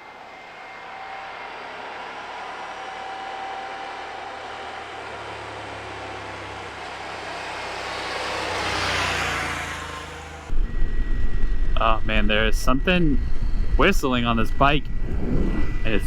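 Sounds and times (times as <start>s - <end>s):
thin steady whistle: 0.0s - 6.3s
motorcycle engine running: 0.8s - 10.6s
wind noise: 10.5s - 16.0s.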